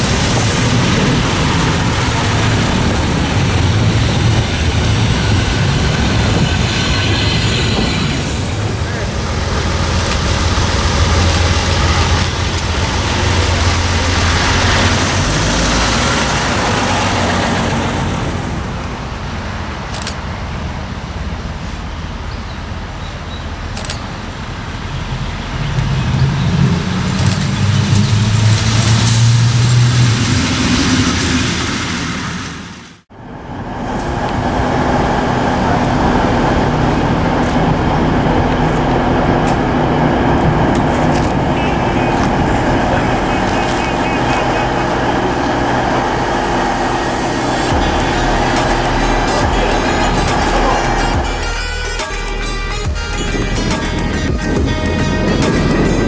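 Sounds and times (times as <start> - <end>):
rail vehicle engine: 0.0 - 56.0
sharp clicks: 19.8 - 20.5, 22.7 - 24.8.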